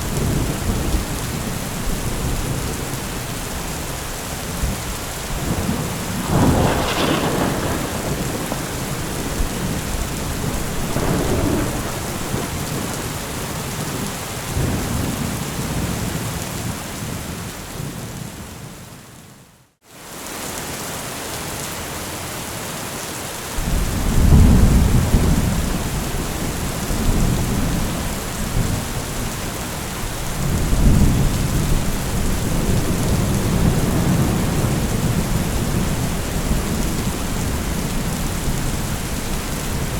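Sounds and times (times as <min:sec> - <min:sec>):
heavy rain hissing: 0:00.0 - 0:15.9, 0:23.6 - 0:39.9
thunder rumbling: 0:00.0 - 0:16.3, 0:23.6 - 0:39.9
sharp thunder crack: 0:05.4 - 0:13.4, 0:23.6 - 0:29.6.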